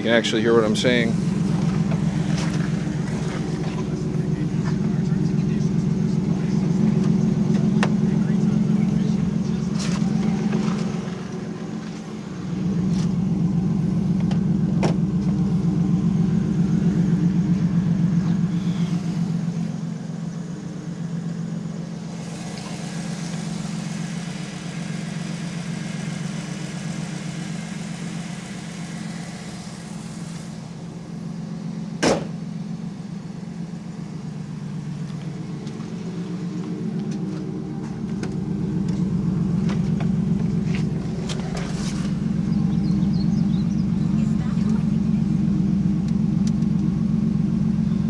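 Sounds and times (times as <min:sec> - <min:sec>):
car engine idling: 0:00.0 - 0:48.0
sharp knock: 0:32.0 - 0:32.4.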